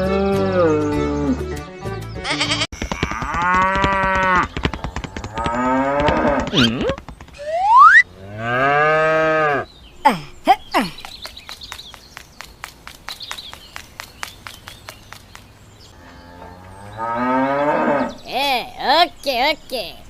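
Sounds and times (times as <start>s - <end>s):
fast steady clicking: 2.8s - 7.5s
cattle mooing: 16.0s - 18.2s.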